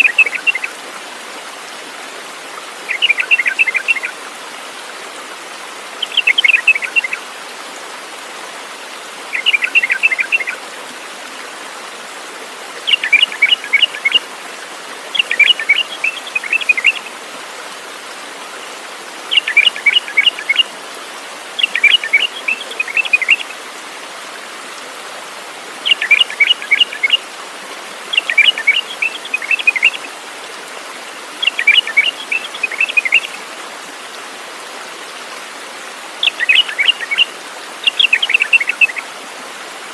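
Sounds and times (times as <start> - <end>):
songbird singing: 0.0 - 0.7, 2.9 - 4.2, 6.0 - 7.2, 9.3 - 10.6, 12.8 - 14.2, 15.1 - 17.1, 19.3 - 20.7, 21.6 - 23.6, 25.8 - 27.2, 28.1 - 30.1, 31.4 - 33.4, 36.2 - 39.1.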